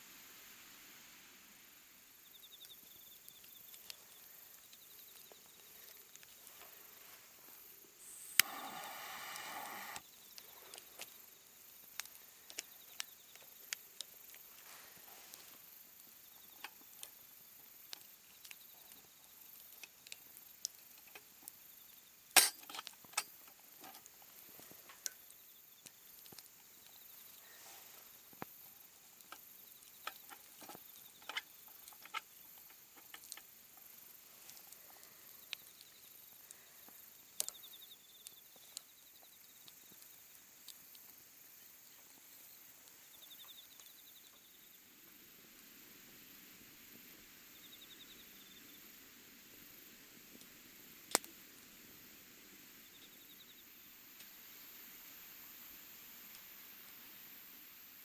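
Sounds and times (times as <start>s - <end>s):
faint steady hiss: 0.0s - 58.0s
small clicks and light knocks: 17.8s - 21.6s, 29.2s - 37.7s.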